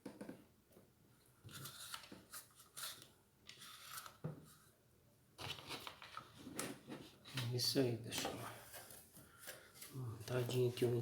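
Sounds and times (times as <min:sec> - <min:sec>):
faint rustling and handling: 0:05.4 - 0:11.0.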